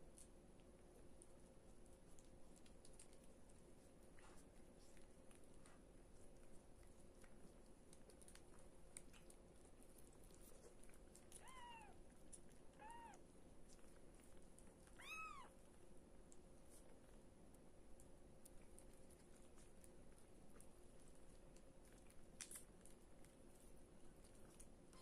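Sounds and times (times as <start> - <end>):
cat mewing: 11.4 - 12.0, 12.8 - 13.2, 15.0 - 15.5.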